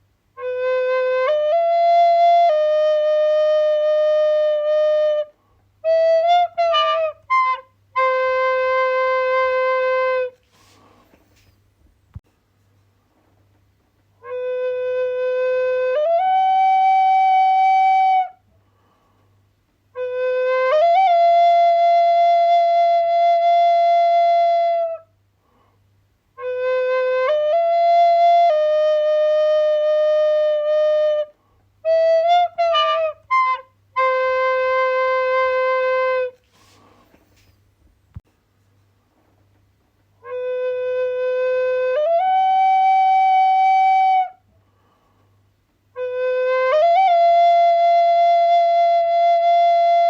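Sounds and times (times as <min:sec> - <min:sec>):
flute-like wind instrument melody: 0:00.4 - 0:10.8, 0:14.2 - 0:18.4, 0:19.9 - 0:25.2, 0:26.4 - 0:37.5, 0:40.2 - 0:44.5, 0:45.9 - 0:50.0.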